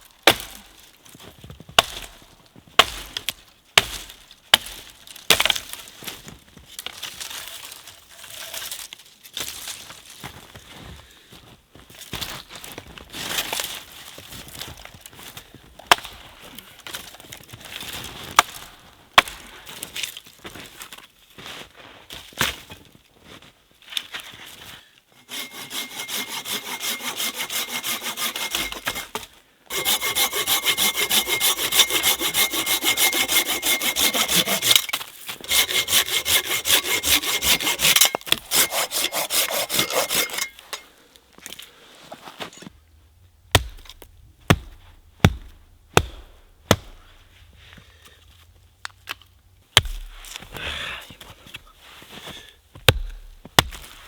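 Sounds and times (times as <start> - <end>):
hand saw cutting wood: 25.2 - 40.9.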